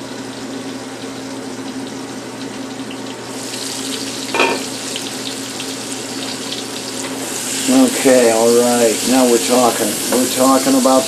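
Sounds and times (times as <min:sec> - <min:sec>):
onions sizzling in a frying pan: 0:02.2 - 0:11.0.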